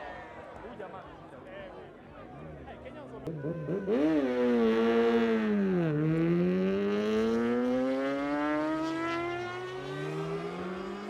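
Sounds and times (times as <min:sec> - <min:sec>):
motorcycle engine accelerating: 0:03.3 - 0:11.0.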